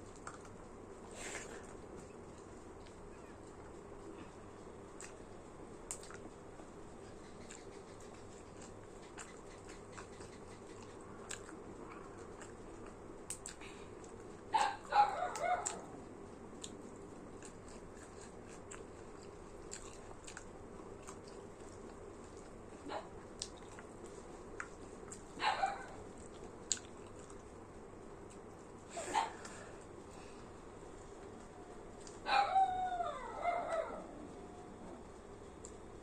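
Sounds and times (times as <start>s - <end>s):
chewing mouth clicks and smacks: 5.0s - 5.2s, 5.9s - 6.3s, 7.1s - 14.4s, 17.4s - 22.6s, 23.3s - 25.4s, 26.2s - 27.5s.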